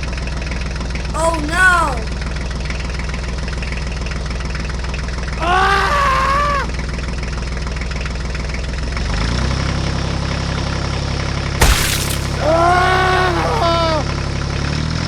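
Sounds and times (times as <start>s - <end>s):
sliding voice-like call: 1.2s - 2.3s.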